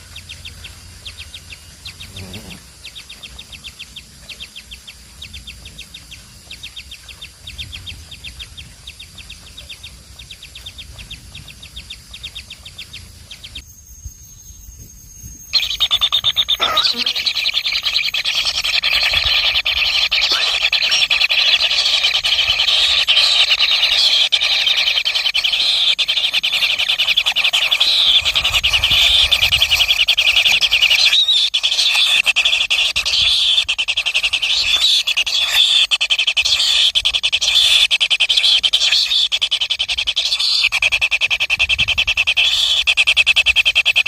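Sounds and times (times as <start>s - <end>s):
baby birds chirping: 15.6s - 44.0s.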